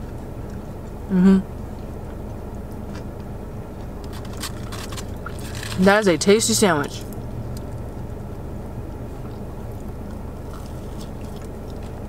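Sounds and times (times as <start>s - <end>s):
car cabin low hum: 0.0s - 12.0s
faint chewing: 9.1s - 12.0s.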